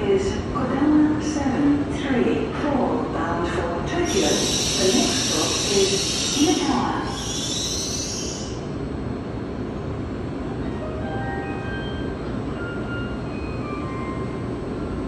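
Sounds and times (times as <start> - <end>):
train rumbling slowly: 0.0 - 15.0
high hiss: 4.1 - 8.6.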